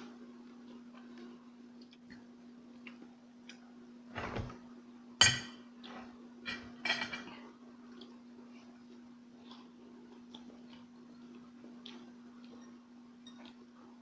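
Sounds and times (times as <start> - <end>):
steady low hum: 0.0 - 14.0
cutlery clinking against dishes: 6.5 - 7.3.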